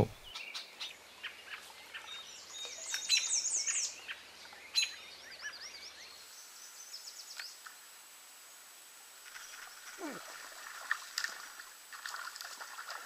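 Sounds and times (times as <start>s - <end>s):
songbirds singing and chirping: 0.0s - 7.6s.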